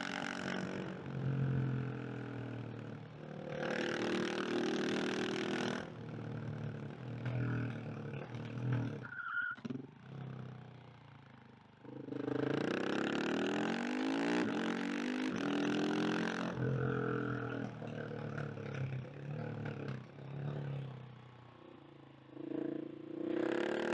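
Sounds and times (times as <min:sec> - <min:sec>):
motorcycle engine accelerating: 0:11.9 - 0:21.0, 0:22.3 - 0:23.9.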